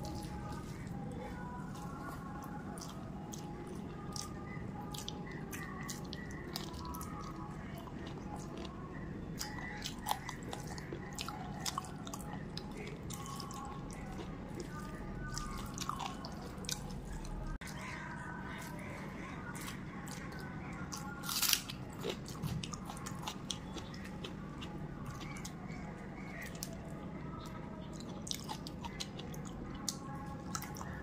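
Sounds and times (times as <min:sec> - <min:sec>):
wet chewing and lip-smacking: 0:01.8 - 0:08.8, 0:09.4 - 0:17.8, 0:19.5 - 0:26.8, 0:27.4 - 0:31.0.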